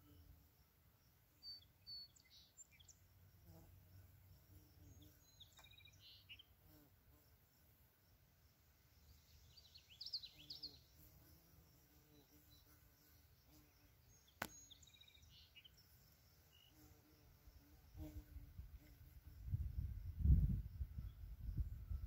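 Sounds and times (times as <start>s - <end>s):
faint birds chirping: 0.0s - 22.0s
low wind rumble: 19.2s - 22.0s.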